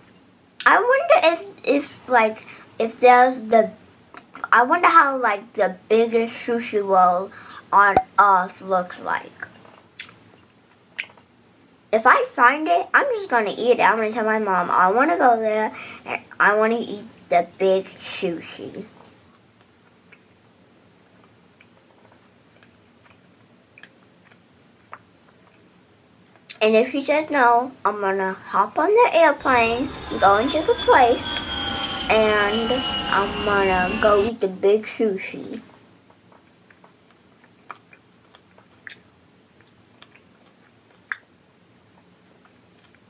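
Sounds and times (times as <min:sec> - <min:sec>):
child chewing with wet mouth clicks: 0:09.4 - 0:11.3, 0:19.3 - 0:20.4, 0:21.0 - 0:26.6, 0:36.0 - 0:43.0.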